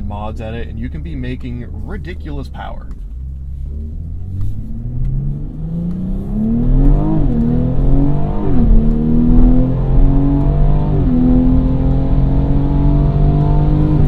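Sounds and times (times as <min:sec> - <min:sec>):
car engine accelerating hard: 0:03.2 - 0:14.0.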